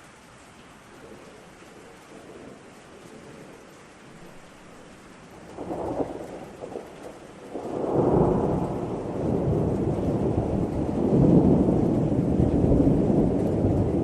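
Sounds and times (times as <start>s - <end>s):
rain hiss: 0.0s - 14.0s
thunder crackle: 5.4s - 14.0s
thunder rolling rumble: 5.4s - 14.0s.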